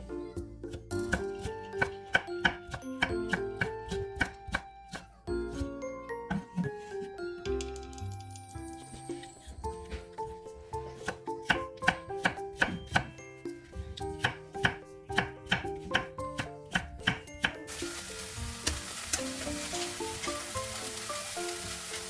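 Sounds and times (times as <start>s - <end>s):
knife chopping on cutting board: 0.7s - 5.7s, 6.3s - 7.0s, 9.2s - 13.2s, 14.0s - 17.6s
food sizzling in frying pan: 17.7s - 22.0s.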